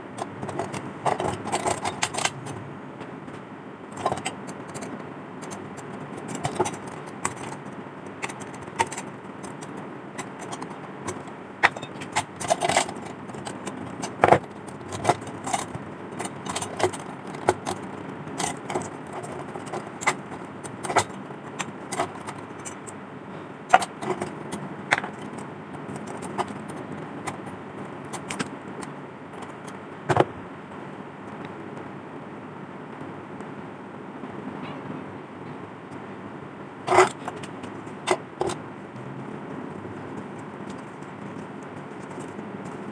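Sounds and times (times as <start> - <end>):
small metal parts clinking: 4.0 - 22.9, 23.7 - 27.5, 40.1 - 42.9.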